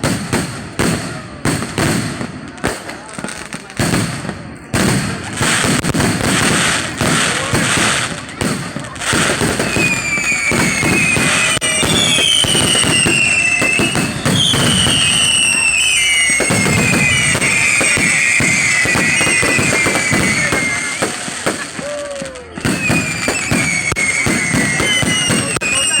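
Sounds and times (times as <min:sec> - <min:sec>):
fireworks crackling and banging: 0:00.0 - 0:26.0
fireworks whistling: 0:00.0 - 0:26.0.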